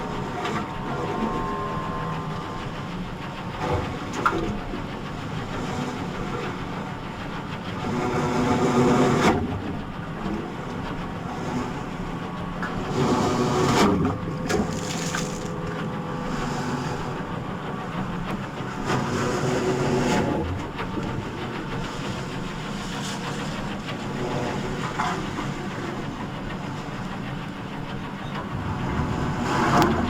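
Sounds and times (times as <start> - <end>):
heavy machinery droning: 0.0 - 8.9, 9.5 - 30.0.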